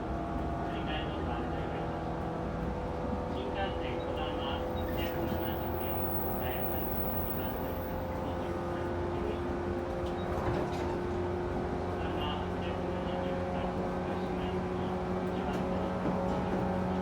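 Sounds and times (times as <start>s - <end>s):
wheels rumbling on rail: 0.2s - 17.0s
train traction motors humming: 3.4s - 8.7s.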